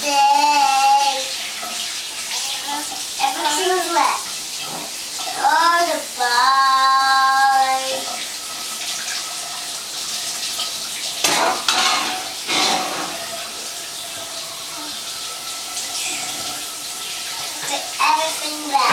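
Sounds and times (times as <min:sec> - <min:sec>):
child singing: 0:00.0 - 0:01.4, 0:02.3 - 0:04.2, 0:05.3 - 0:08.1, 0:17.5 - 0:18.9
water running in a bath: 0:00.0 - 0:18.9.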